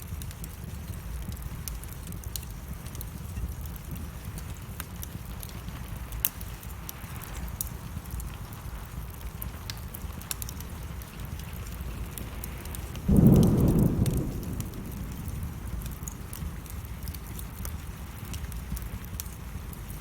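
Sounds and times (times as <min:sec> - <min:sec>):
steady rain: 0:00.0 - 0:20.0
wood fire crackling: 0:00.0 - 0:20.0
low thunder rumble: 0:11.7 - 0:19.2.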